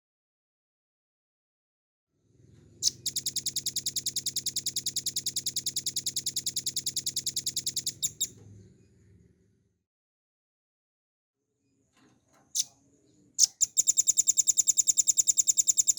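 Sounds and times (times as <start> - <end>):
bird song with fast trill: 2.8 - 8.3, 13.4 - 15.9.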